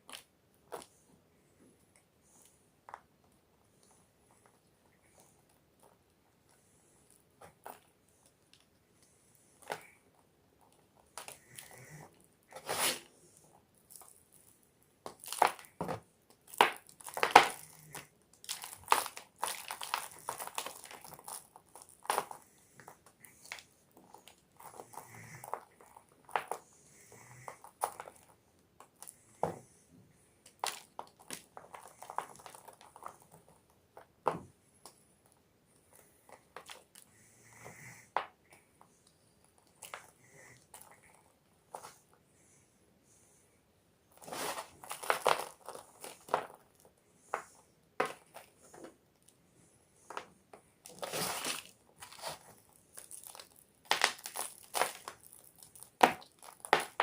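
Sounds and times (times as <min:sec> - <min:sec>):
chalk being crushed by hand: 0:15.0 - 0:26.6, 0:50.1 - 0:57.0.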